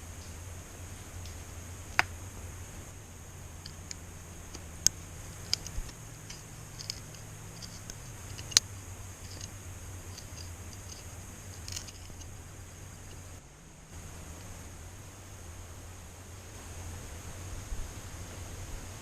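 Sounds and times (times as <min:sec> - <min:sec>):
high-pitched insect drone: 0:00.0 - 0:19.0
sharp clicks and knocks: 0:03.6 - 0:13.4.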